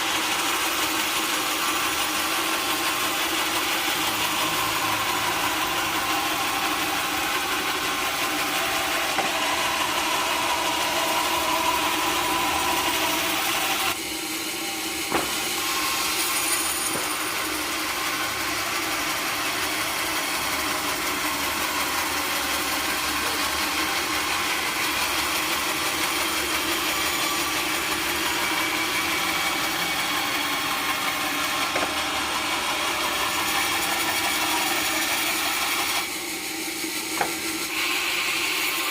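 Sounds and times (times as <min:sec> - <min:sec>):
sawmill machinery running: 0:00.0 - 0:38.9
sharp knock: 0:15.1 - 0:15.6.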